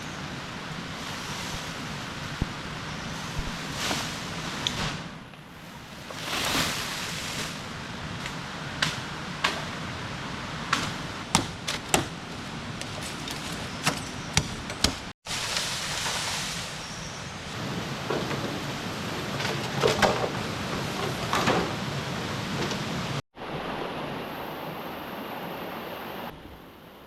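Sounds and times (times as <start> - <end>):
sharp knocks and taps: 12.8 - 15.1.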